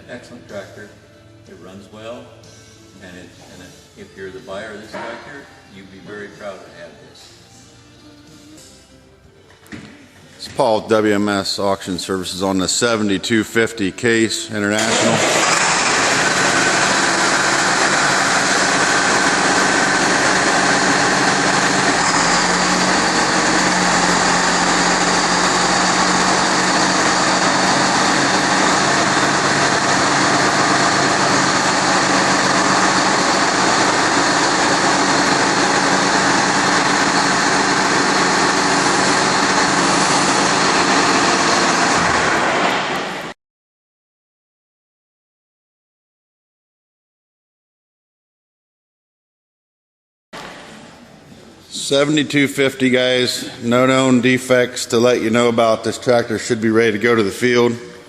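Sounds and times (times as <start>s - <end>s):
tractor diesel engine running: 14.8s - 42.6s.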